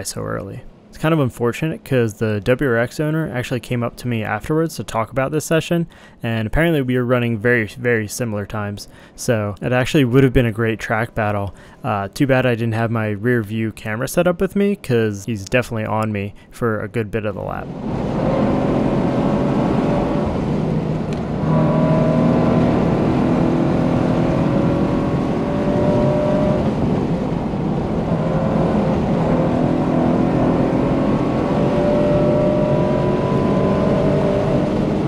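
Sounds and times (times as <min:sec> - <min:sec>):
exhaust droning loudly: 0:17.5 - 0:35.0
car engine pulling at high revs: 0:17.6 - 0:35.0
wind noise: 0:24.4 - 0:29.9.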